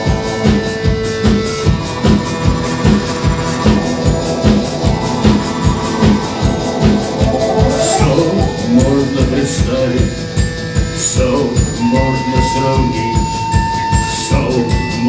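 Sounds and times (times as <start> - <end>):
electric guitar: 0.0 - 10.5
drum kit beat: 0.0 - 15.0
long held high note: 3.4 - 9.2.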